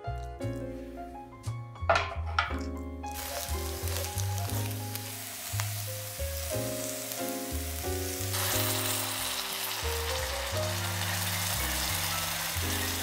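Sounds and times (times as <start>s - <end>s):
soft background music: 0.0s - 13.0s
tomatoes poured into hot pan: 1.9s - 13.0s
food sizzling in a skillet: 3.1s - 13.0s.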